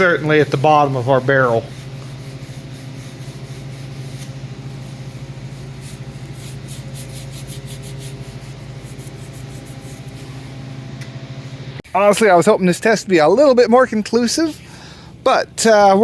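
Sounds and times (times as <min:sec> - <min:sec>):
low hum: 0:00.0 - 0:16.0
scrubbing on greasy metal: 0:00.2 - 0:10.7.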